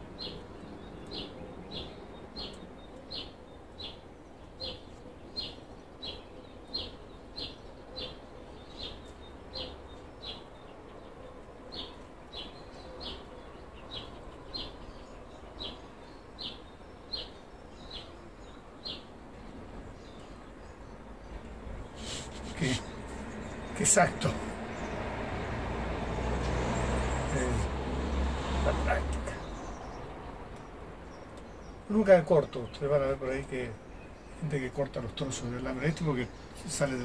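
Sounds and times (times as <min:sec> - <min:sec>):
small bird chirping: 0:00.0 - 0:25.0.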